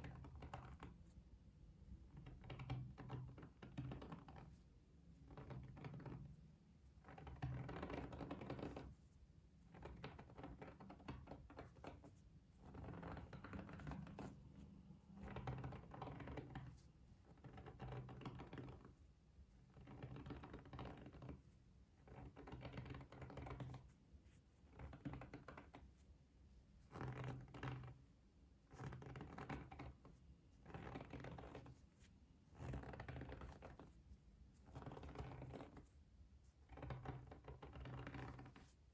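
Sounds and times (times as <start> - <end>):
soft scratching: 28.8 - 38.9.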